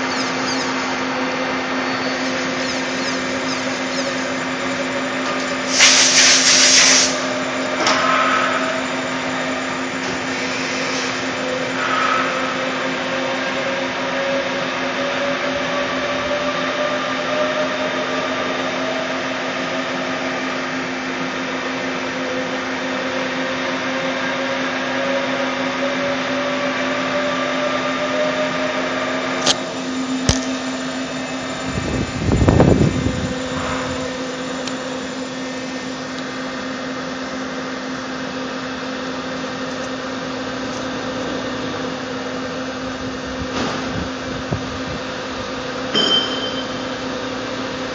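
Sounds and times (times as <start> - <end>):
lathe humming and whining: 0.0 - 47.9
loud hissing burst: 5.5 - 7.3.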